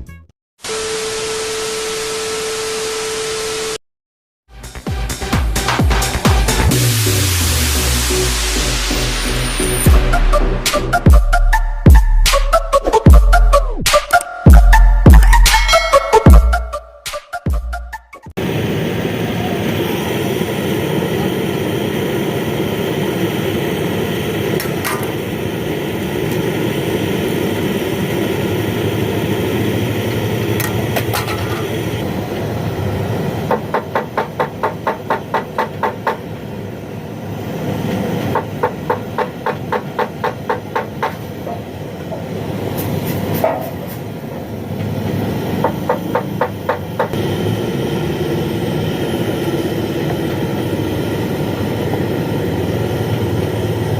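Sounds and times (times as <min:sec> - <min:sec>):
hammer tapping on metal: 0:33.5 - 0:36.2, 0:38.4 - 0:41.2.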